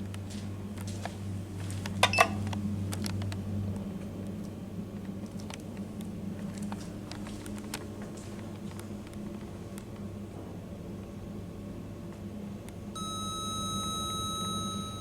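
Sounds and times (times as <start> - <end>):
lift motor humming: 13.0 - 15.0.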